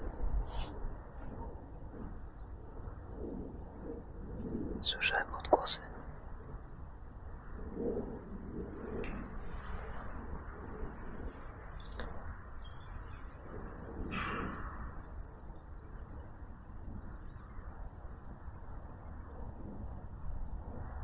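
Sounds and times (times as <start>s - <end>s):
steady low rumble: 0.0s - 17.3s
small birds chirping: 11.4s - 14.2s.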